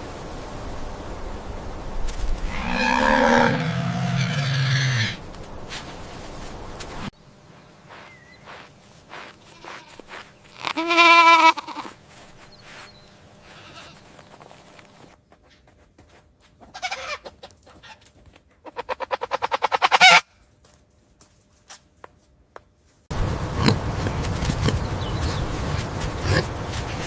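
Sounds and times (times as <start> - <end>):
sharp chicken calls: 7.9 - 11.9, 16.7 - 18.0, 18.6 - 20.3
chickens clucking: 16.6 - 20.2.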